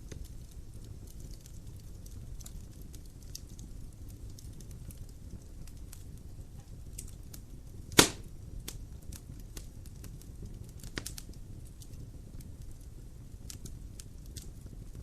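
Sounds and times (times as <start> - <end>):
wood fire crackling: 0.0 - 15.0
loud sharp pop of fire: 7.9 - 8.4, 10.8 - 11.2.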